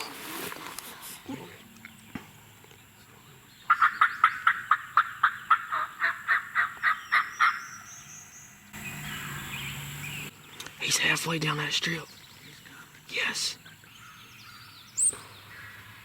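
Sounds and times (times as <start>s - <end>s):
turkey yelps: 3.7s - 7.9s.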